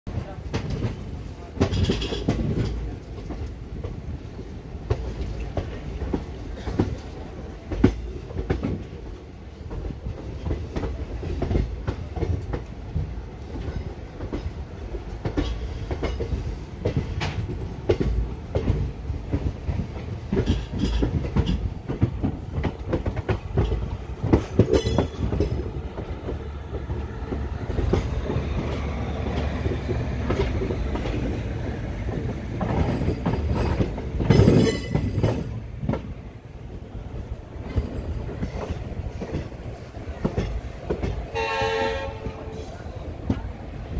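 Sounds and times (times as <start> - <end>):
train rumbling on track: 0.0 - 43.9
wheels clattering over rail joints: 0.5 - 3.9, 4.9 - 36.2.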